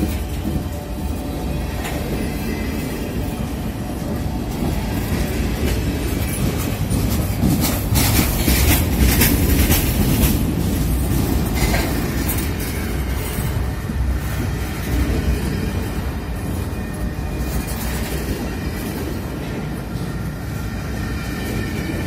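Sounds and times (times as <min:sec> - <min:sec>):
train clattering: 0:00.0 - 0:22.0
train wheels rumbling on rail: 0:00.0 - 0:22.0.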